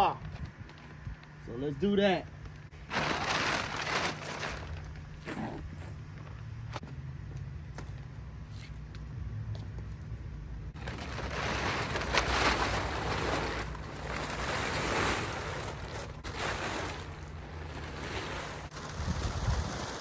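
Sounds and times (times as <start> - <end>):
fabric cover rustling: 2.8 - 5.6, 10.8 - 20.0.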